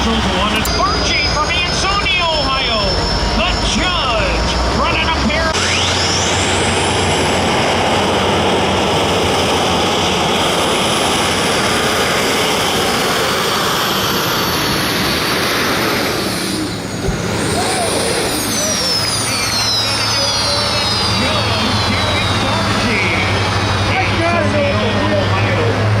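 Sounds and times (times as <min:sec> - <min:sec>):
diesel engine roaring: 0:00.0 - 0:26.0
high turbo whine: 0:00.0 - 0:26.0.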